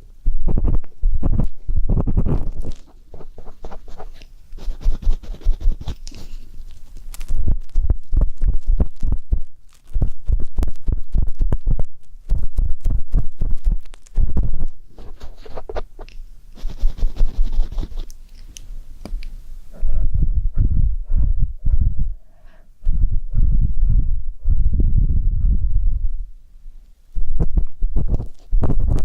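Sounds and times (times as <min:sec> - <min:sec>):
ear pick scraping microphone: 0:00.4 - 0:06.5, 0:07.4 - 0:18.0.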